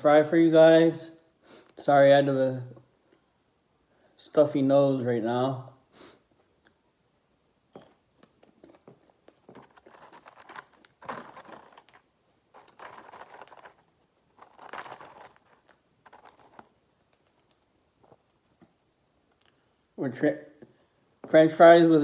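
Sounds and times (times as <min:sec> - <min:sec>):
man eating: 0:08.3 - 0:12.0.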